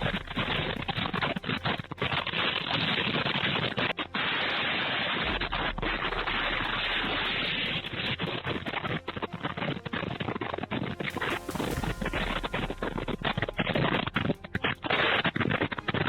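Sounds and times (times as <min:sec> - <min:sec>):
rain: 0:00.0 - 0:16.0.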